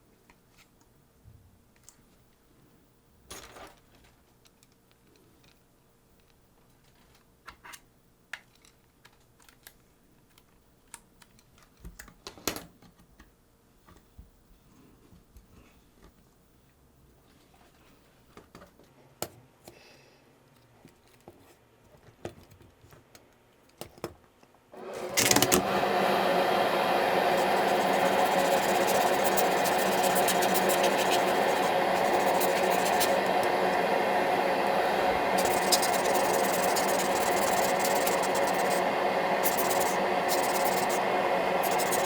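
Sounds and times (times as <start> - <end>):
clicks of small parts handled: 6.2 - 12.6
small motor running: 24.8 - 42.0.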